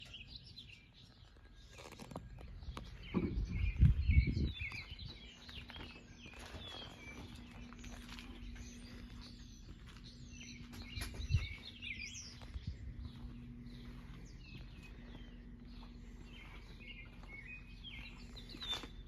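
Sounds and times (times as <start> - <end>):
small birds chirping: 0.0 - 19.0
faint low hum: 2.2 - 19.0
loud low rumble with thumps: 2.5 - 5.9, 7.0 - 19.0.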